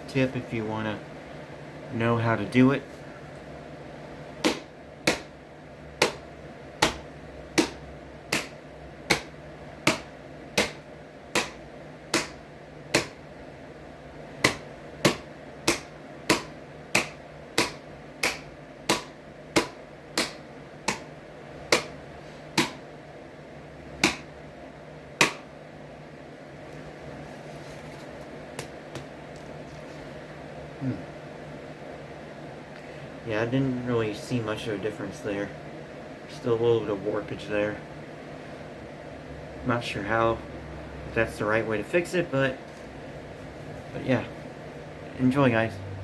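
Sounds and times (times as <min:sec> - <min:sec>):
hands clapping on fan blade: 0:07.6 - 0:09.3, 0:14.4 - 0:21.1
low hum: 0:44.8 - 0:46.0.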